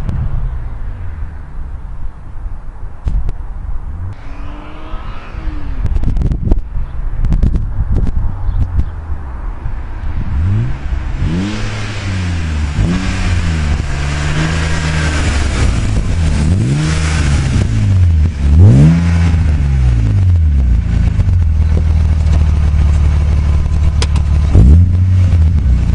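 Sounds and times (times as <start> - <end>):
car engine revving and idling: 4.0 - 7.4, 9.2 - 25.9.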